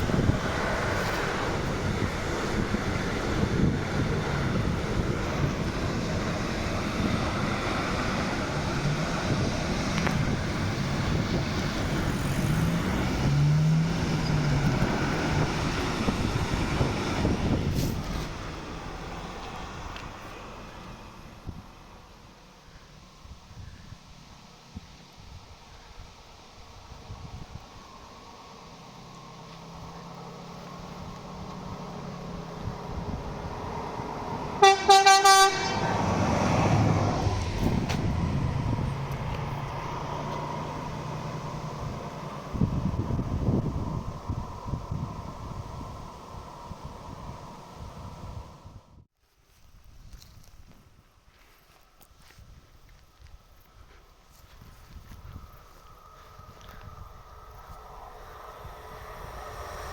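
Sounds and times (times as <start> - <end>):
train passing close by: 0.0 - 22.4, 29.7 - 49.0, 55.2 - 59.9
train horn toots: 34.6 - 36.1.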